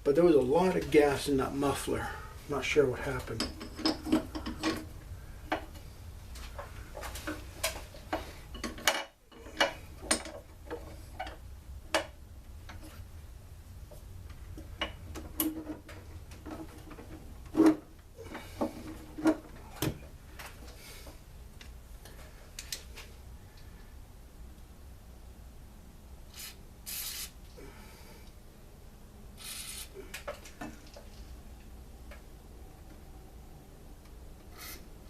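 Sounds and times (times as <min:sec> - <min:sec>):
tools and parts clicking and knocking: 0:03.3 - 0:04.9, 0:06.6 - 0:12.9.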